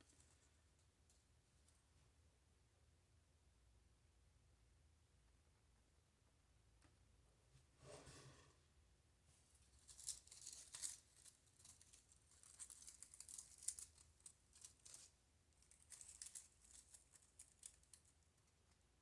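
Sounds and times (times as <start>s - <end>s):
paper rustling and crinkling: 9.8s - 18.0s.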